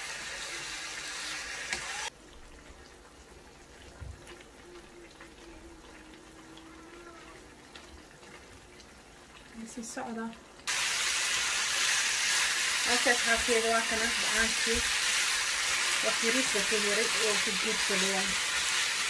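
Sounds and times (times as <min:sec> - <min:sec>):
chicken sizzling in a frying pan: 0:00.0 - 0:02.2, 0:09.6 - 0:19.0.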